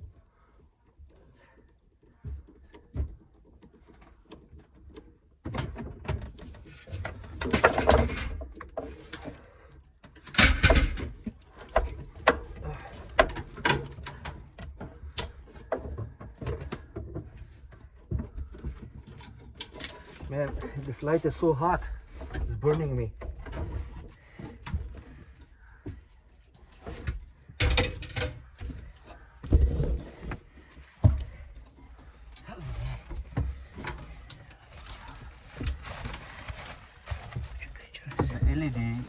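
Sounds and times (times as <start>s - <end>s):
tools knocking and rattling: 2.0s - 39.0s.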